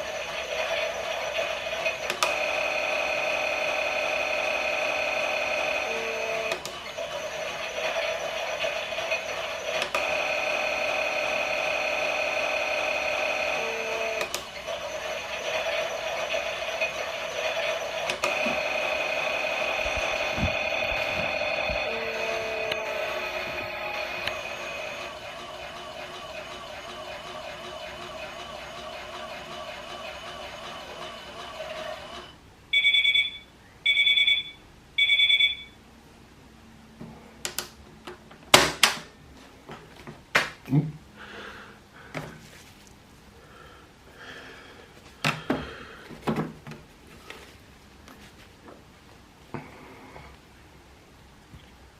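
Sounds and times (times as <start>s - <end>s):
small electric motor whirring: 0.0s - 27.3s
toy washing machine beeps: 0.0s - 35.8s.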